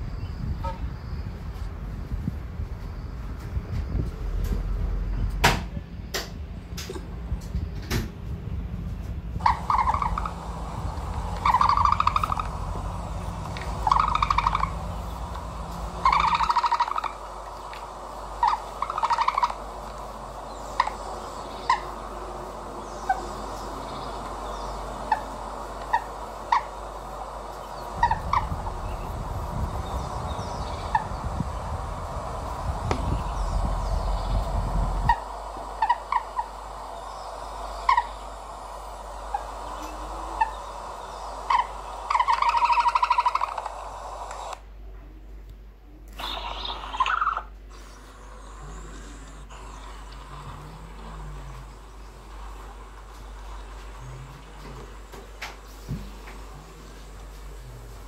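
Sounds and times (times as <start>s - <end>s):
bird chirps: 9.4s - 17.7s, 22.8s - 43.8s
birds calling: 9.4s - 44.6s.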